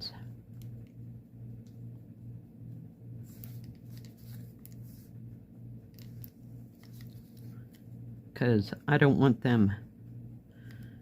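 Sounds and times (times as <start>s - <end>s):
low hum: 0.0s - 11.0s
soft scratchy handling of fabric: 3.2s - 5.2s.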